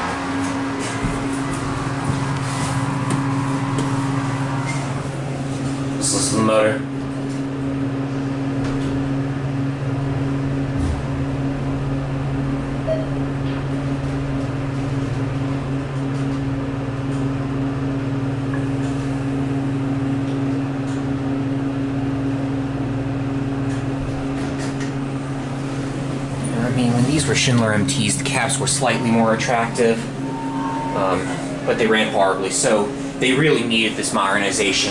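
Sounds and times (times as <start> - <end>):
elevator motor humming: 0.0 - 34.9.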